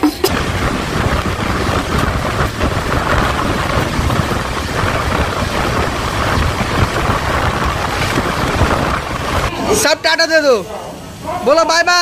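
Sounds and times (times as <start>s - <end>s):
loud rushing noise: 0.2s - 10.3s
fluttering low rumble: 0.3s - 9.5s.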